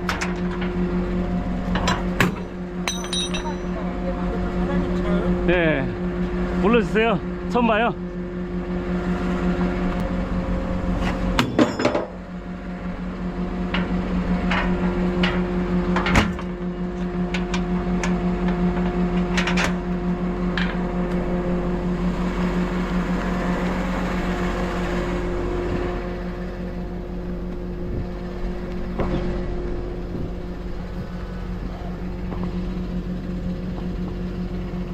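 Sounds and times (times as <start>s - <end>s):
truck engine humming: 0.0s - 11.4s, 12.0s - 34.9s
sharp metallic clanks: 2.2s - 3.8s.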